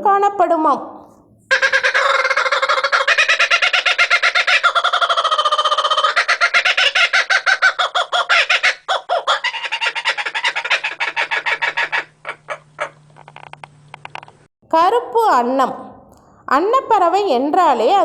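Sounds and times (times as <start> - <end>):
kookaburra cackling call: 1.5 - 13.6.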